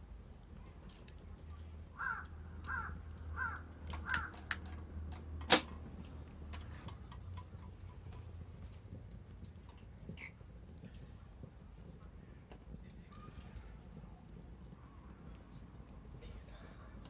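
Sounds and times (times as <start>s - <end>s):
bonfire wood cracking: 0.0s - 17.0s
harsh bird calls: 2.0s - 4.5s.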